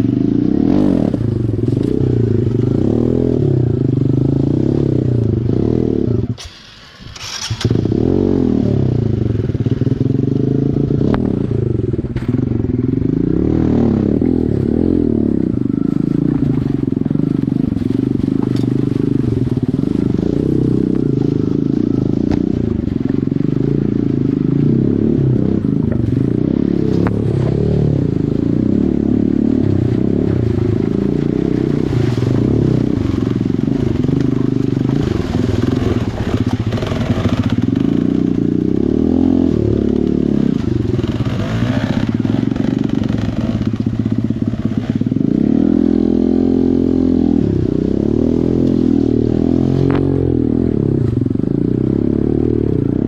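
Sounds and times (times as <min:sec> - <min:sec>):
dirt bike engine revving: 0:00.0 - 0:53.0
knocks and clatter over rocks: 0:15.5 - 0:24.8, 0:25.5 - 0:27.6, 0:29.5 - 0:45.3.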